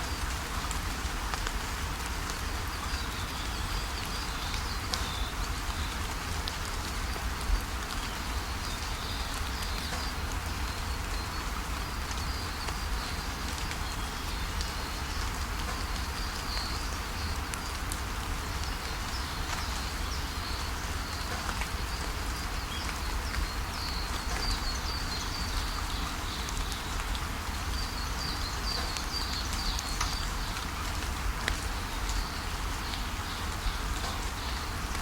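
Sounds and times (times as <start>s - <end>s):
steady rainfall: 0.0s - 35.0s
small birds chirping: 18.3s - 35.0s.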